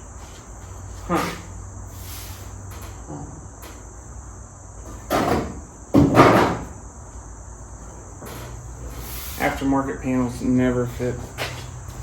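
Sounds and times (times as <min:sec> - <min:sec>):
steady high-pitched whine: 0:00.0 - 0:12.0
sheet metal clattering: 0:05.0 - 0:06.7.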